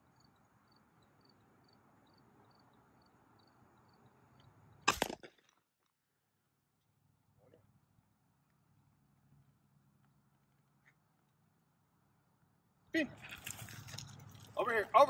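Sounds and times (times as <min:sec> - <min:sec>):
shotgun shot with echo: 0:04.9 - 0:05.4.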